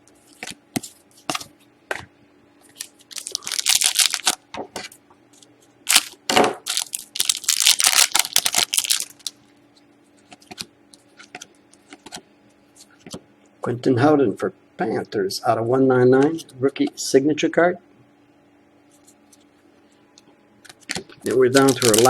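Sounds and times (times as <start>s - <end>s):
cards and wrapper rustling: 2.7s - 4.4s, 5.9s - 9.4s, 21.2s - 22.0s.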